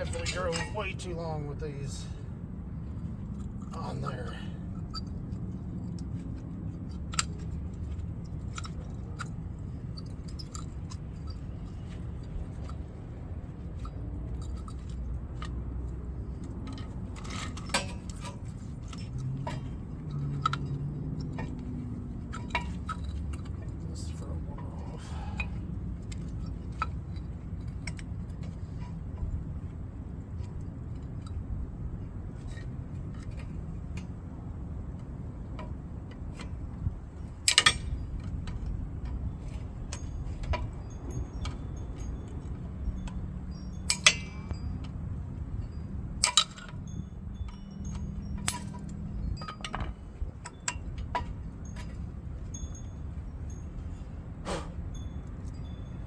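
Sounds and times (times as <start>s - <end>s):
metal tools clinking: 0.0s - 2.2s, 6.9s - 29.4s, 36.3s - 56.0s.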